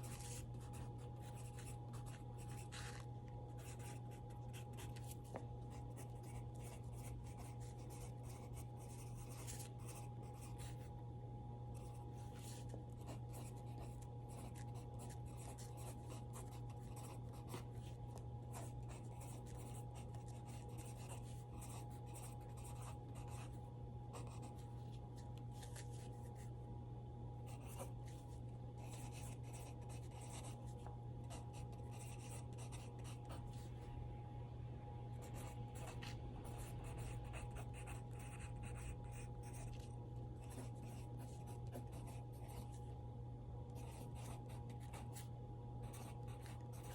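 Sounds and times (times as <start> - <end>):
pencil scratching on paper: 0.0 - 10.9, 11.8 - 24.9, 27.5 - 33.7, 35.2 - 42.8, 43.8 - 46.9
low hum: 0.0 - 46.9.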